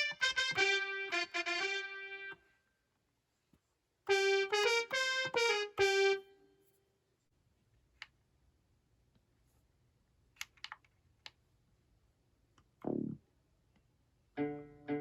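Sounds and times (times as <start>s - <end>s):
piano-like keyboard notes: 14.4s - 15.0s.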